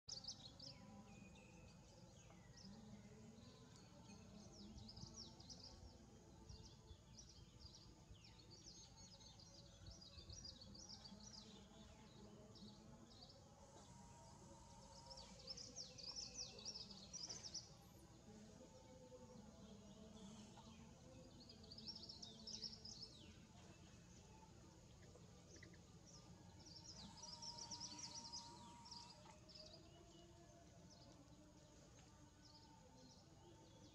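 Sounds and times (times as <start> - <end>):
small birds chirping: 18.9 - 33.9.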